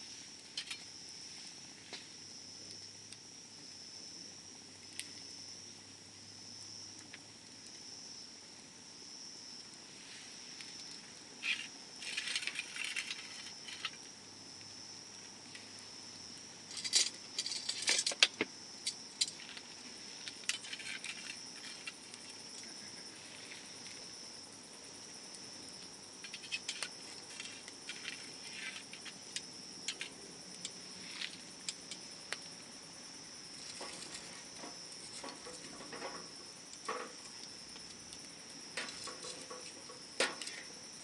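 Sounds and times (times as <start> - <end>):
bonfire crackling and popping: 0.1 - 41.0.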